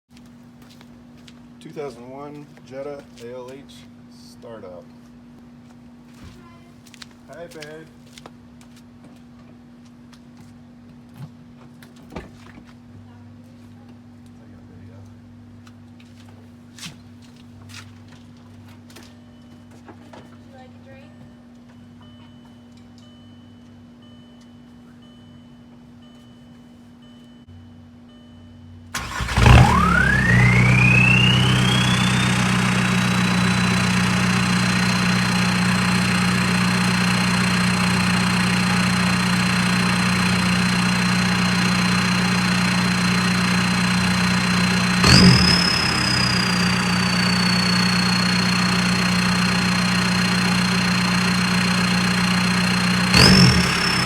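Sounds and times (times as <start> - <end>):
diesel engine starting and idling: 29.0 - 54.0
engine throttle blips: 29.0 - 54.0.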